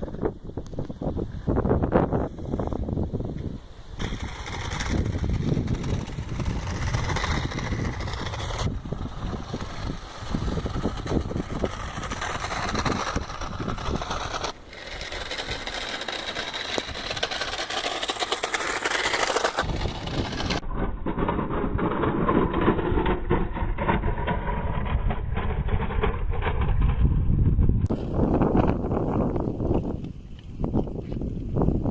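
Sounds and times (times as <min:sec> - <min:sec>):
model car motor running: 0:04.0 - 0:20.6
chassis and tyres clattering: 0:04.0 - 0:28.1.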